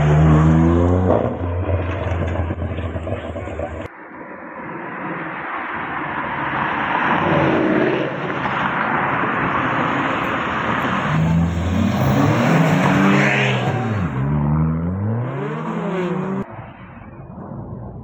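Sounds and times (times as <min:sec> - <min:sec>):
engine revving: 0:00.0 - 0:03.9, 0:11.0 - 0:16.5
cars driving past: 0:04.8 - 0:18.0.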